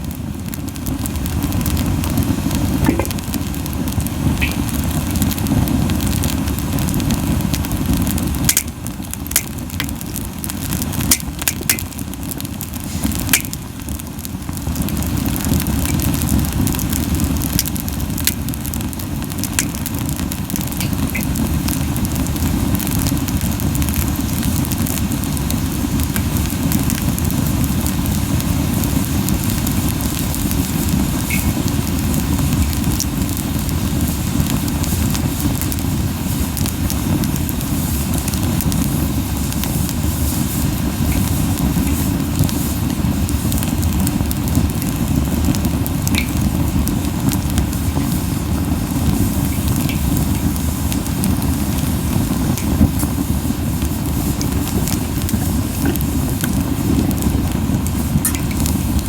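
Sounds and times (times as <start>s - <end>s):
campfire flames buffeting: 0.0s - 59.0s
wood crackling and popping: 0.0s - 59.0s.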